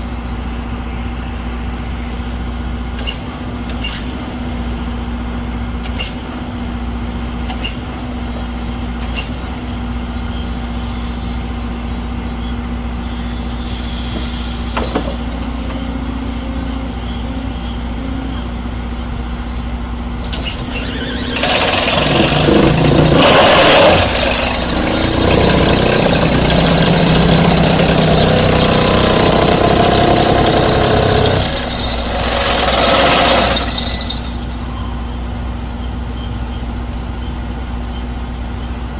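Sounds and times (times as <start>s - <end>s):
excavator engine running: 4.5s - 38.9s
vibro pile driver rattling: 20.3s - 34.6s.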